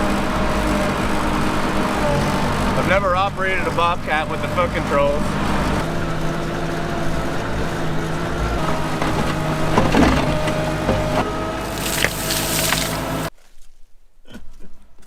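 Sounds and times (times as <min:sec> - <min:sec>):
loader engine running: 0:00.0 - 0:13.3
knocks and clatters: 0:08.6 - 0:13.3.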